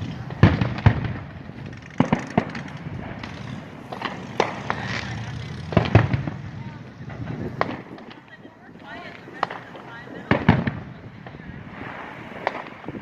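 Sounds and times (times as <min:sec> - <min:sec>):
low rumble: 0:00.0 - 0:08.3
fireworks bangs: 0:00.0 - 0:13.0.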